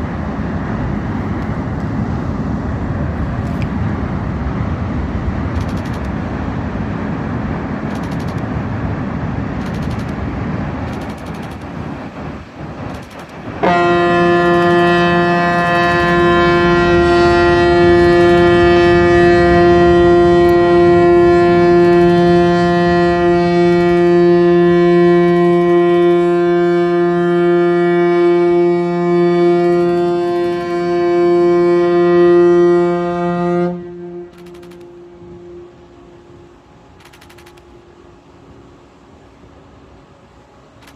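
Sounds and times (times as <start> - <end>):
steady low rush: 0.0 - 40.9
ship's horn blast: 13.3 - 40.9.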